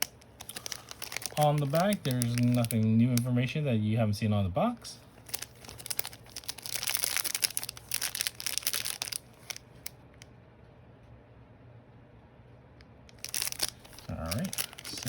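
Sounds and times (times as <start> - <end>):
wrapper crinkling: 0.0 - 3.3, 5.1 - 9.9, 13.1 - 15.0.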